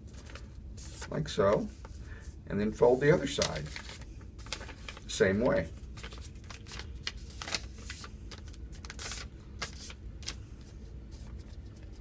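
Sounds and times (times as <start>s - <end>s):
paper being folded and creased: 2.9s - 12.0s.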